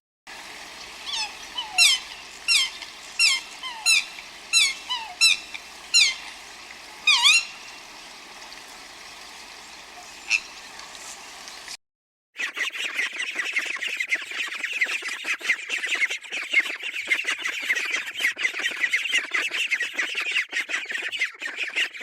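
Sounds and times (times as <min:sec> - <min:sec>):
steady hiss: 0:00.3 - 0:11.8
baby bird peeping: 0:00.4 - 0:11.7.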